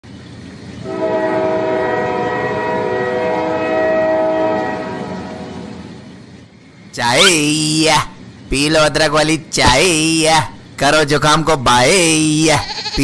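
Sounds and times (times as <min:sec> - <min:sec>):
train horn blast: 0:00.8 - 0:06.0.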